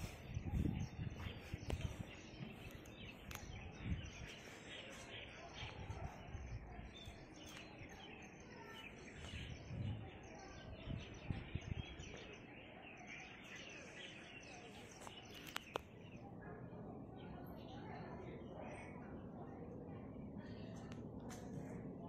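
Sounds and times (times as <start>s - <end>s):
birds chirping: 0.0s - 22.0s
low outdoor rumble: 15.9s - 22.0s.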